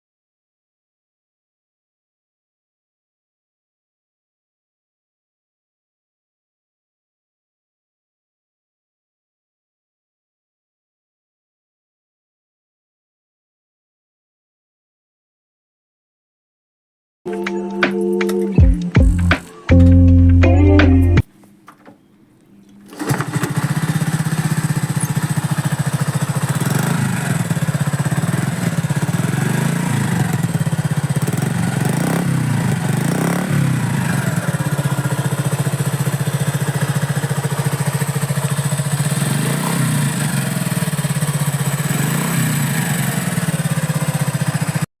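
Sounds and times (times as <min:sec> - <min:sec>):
small motorcycle engine idling: 0:22.9 - 0:44.9.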